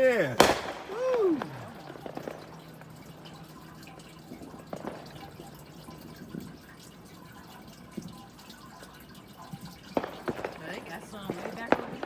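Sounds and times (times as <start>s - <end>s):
steady hiss: 0.0s - 2.6s
distant fireworks popping: 0.0s - 12.0s.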